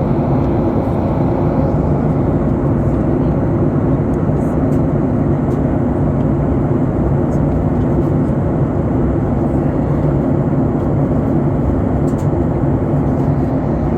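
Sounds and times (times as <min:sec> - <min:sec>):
airliner cabin noise: 0:00.0 - 0:13.9.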